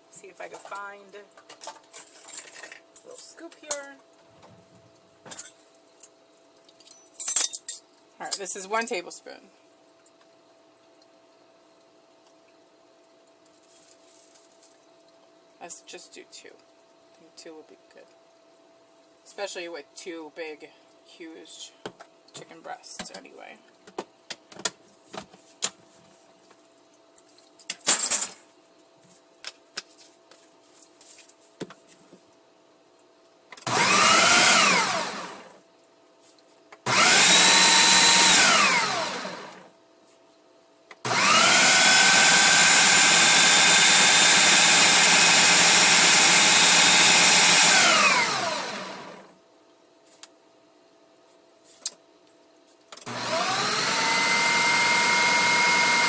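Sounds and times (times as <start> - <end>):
food processor motor whining: 33.6 - 35.6, 36.9 - 39.6, 41.0 - 49.3, 53.0 - 56.0.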